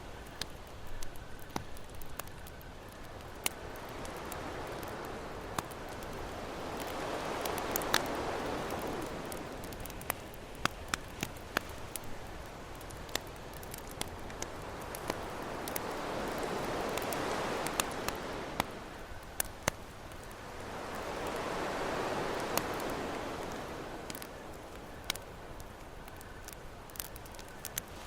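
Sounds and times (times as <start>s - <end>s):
campfire crackling and popping: 0.0s - 28.0s
ocean waves washing in: 3.7s - 10.3s, 13.8s - 19.4s, 20.0s - 25.2s.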